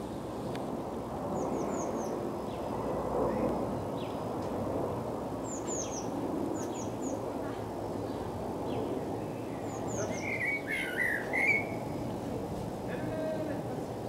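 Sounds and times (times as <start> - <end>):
low background rush: 0.0 - 14.0
songbird calling high thin notes: 9.8 - 12.0.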